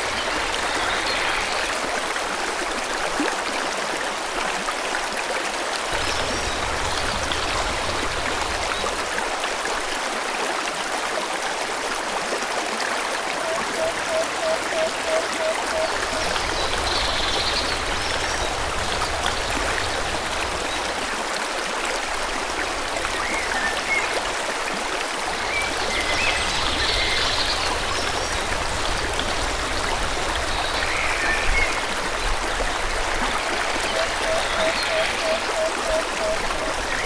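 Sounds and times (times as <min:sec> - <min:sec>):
stream flowing: 0:00.0 - 0:37.0
birds chirping: 0:05.9 - 0:09.0, 0:14.8 - 0:20.9, 0:25.4 - 0:31.9, 0:33.6 - 0:37.0.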